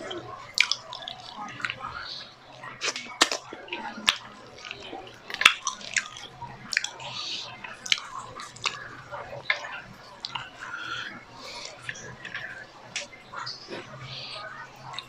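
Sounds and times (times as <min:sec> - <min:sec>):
person chewing and lip smacking: 0:00.1 - 0:02.2, 0:02.8 - 0:08.8, 0:09.4 - 0:13.9.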